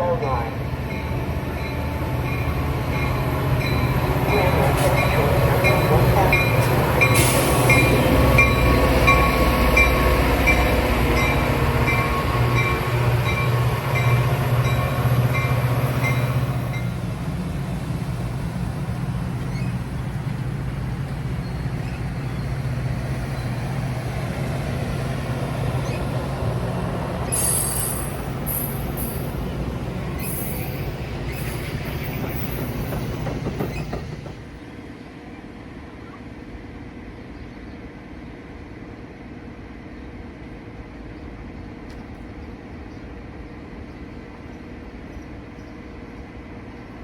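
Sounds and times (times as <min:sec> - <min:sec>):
train low rumble: 0:00.0 - 0:47.0
train bell ringing: 0:00.3 - 0:17.0, 0:27.4 - 0:29.4.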